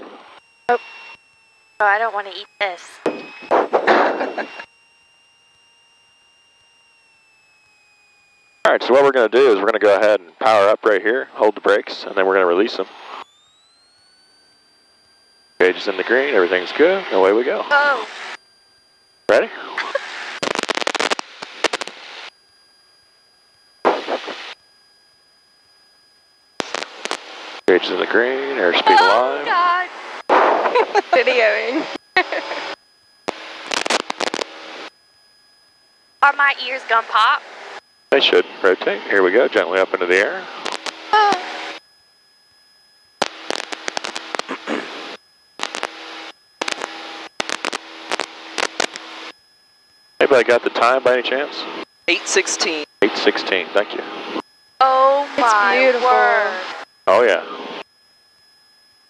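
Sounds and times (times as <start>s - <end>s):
headset intercom crackling and popping: 1.8s - 4.7s, 19.8s - 22.3s, 23.9s - 24.6s, 26.6s - 34.9s, 40.4s - 41.8s, 43.2s - 49.3s, 55.2s - 57.8s
airplane engine and cabin noise: 8.7s - 13.1s, 15.6s - 17.7s, 27.2s - 32.7s, 36.3s - 41.6s.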